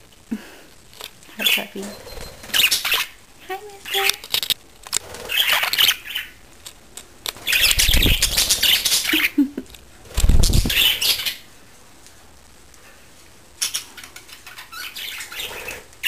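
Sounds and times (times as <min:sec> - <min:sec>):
birds flapping wings: 0:04.2 - 0:05.9, 0:07.2 - 0:09.3, 0:10.0 - 0:11.4.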